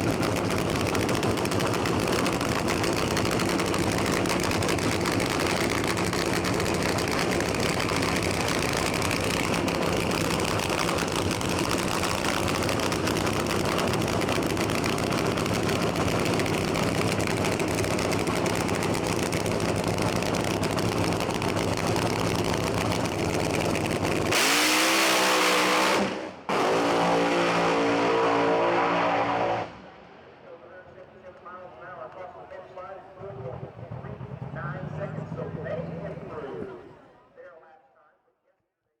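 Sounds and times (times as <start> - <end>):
dragster engine idling and revving: 0.0 - 30.0, 33.2 - 37.1.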